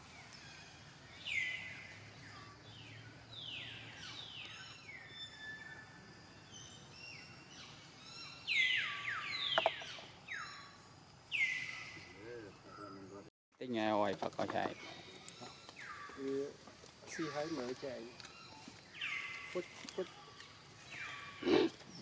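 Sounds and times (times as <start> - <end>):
birds calling: 0.0 - 13.3, 14.4 - 22.0.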